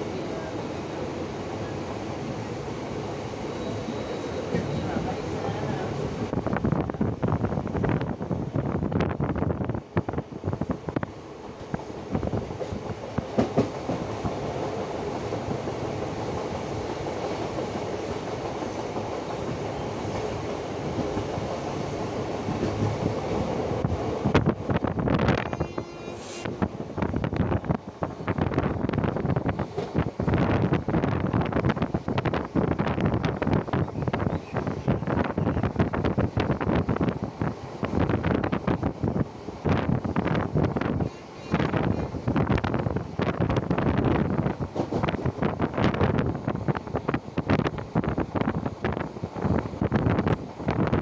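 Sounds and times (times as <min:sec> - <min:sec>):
train running noise: 0:00.0 - 0:51.0
wind rushing over microphone: 0:04.6 - 0:51.0.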